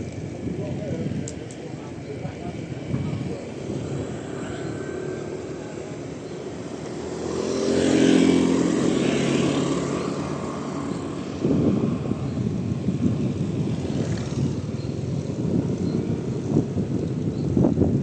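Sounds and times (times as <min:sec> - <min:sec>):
vehicle passing by: 0:03.6 - 0:12.6, 0:13.4 - 0:14.7.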